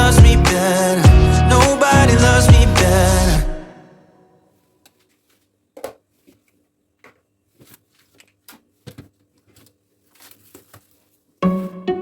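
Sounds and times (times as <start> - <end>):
music: 0.0 - 3.7, 11.4 - 12.0.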